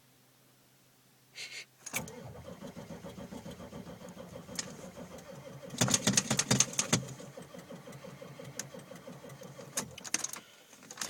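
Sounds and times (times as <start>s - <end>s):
diesel engine cranking on starter: 1.9s - 10.5s
engine knocking trying to fire: 2.0s - 10.1s.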